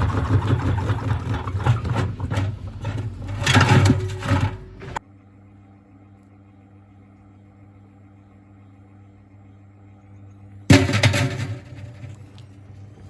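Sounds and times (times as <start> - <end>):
washing machine rumbling: 0.0 - 5.1, 10.6 - 13.0
faint steady hum: 0.0 - 13.0.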